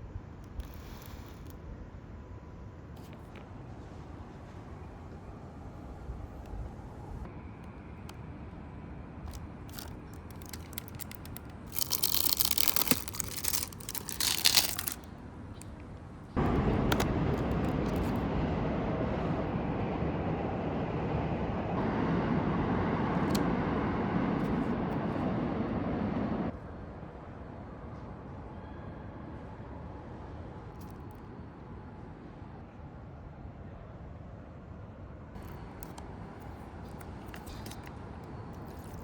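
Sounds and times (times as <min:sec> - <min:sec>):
plastic packaging crinkling and tearing: 0:09.3 - 0:15.7, 0:35.4 - 0:37.9, 0:38.6 - 0:39.0
steady rushing noise: 0:16.4 - 0:26.5.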